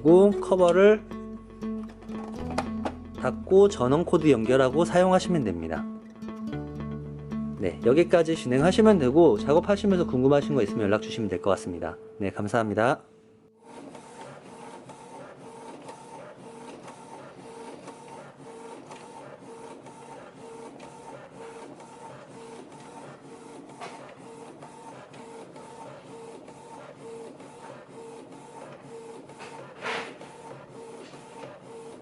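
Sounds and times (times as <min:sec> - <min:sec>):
inkjet printer whirring: 0:13.6 - 0:32.0
printer clatter: 0:13.7 - 0:32.0.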